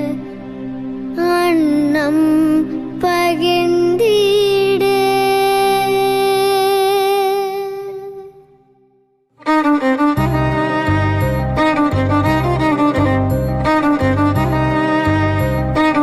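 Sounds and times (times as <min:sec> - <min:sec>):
long held musical note: 0:09.4 - 0:16.0
low bass line: 0:10.1 - 0:16.0.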